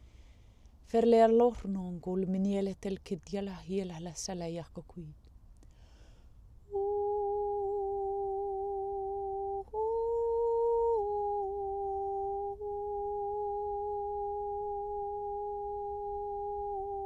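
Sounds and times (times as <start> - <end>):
woman humming sustained notes: 6.7 - 17.0.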